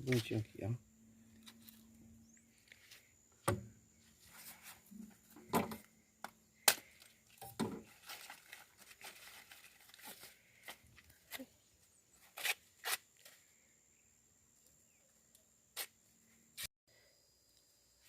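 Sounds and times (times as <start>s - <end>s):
rustling: 7.8s - 11.5s.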